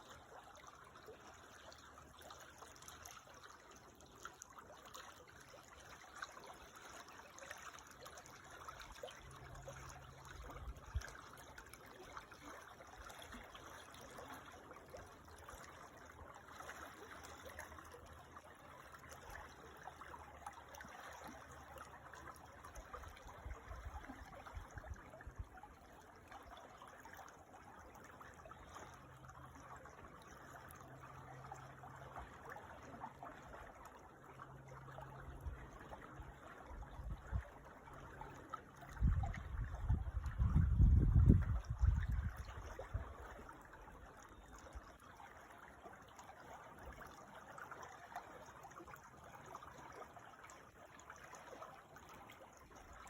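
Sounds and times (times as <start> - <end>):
small creek trickling: 0.0 - 53.0.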